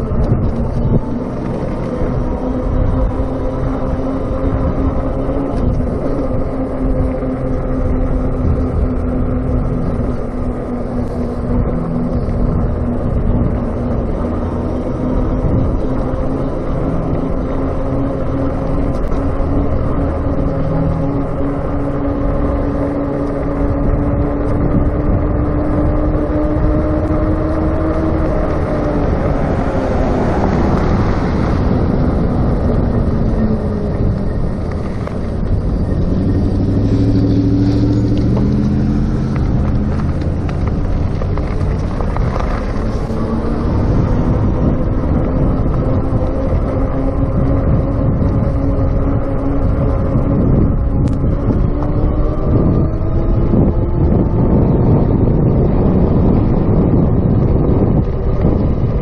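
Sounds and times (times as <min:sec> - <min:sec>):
electric bike motor whine: 0:00.0 - 0:59.0
wind and tyre rumble: 0:00.0 - 0:59.0.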